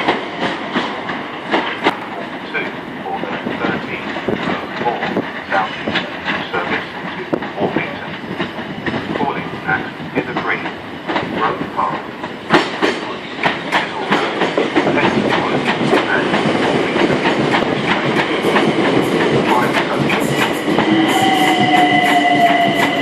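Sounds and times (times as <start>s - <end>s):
falling whine of slowing train: 0.0s - 23.0s
train wheels clicking over joints: 0.0s - 23.0s
train brakes squealing: 20.2s - 23.0s.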